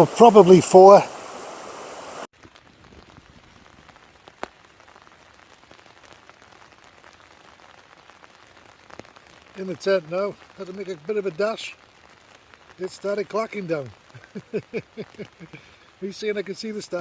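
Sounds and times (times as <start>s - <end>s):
steady hiss: 0.0s - 2.3s, 8.9s - 17.0s
raindrops ticking on tent: 0.0s - 17.0s.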